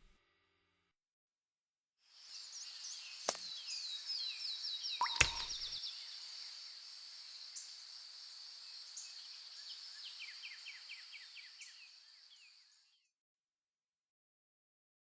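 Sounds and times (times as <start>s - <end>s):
high insect trill: 2.1s - 12.8s
bird chirping: 2.2s - 13.0s.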